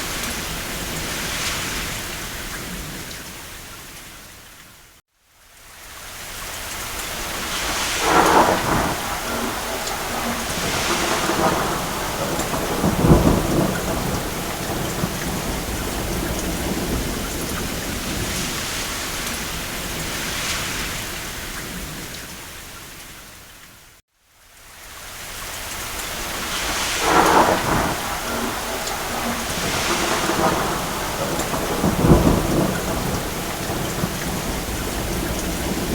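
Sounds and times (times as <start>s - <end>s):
rain on a roof: 0.0s - 35.9s
thunder rumble: 7.0s - 22.3s, 26.0s - 35.9s.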